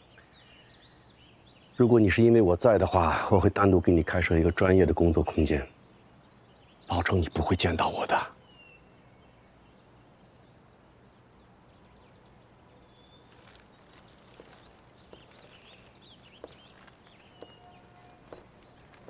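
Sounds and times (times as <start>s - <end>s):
low background noise: 0.0s - 19.0s
small birds chirping: 0.0s - 19.0s
slow footsteps: 13.2s - 19.0s.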